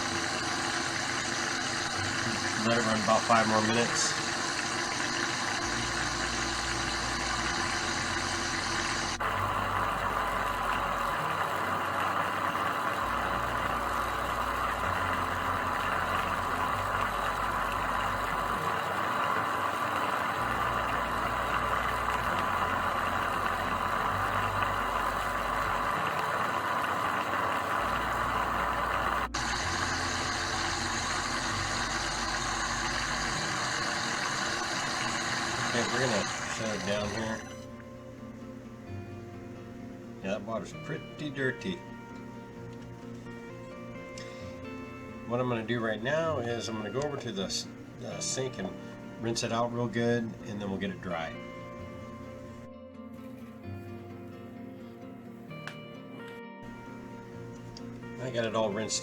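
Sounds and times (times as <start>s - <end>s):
electric motor whirring in water: 0.0s - 38.0s.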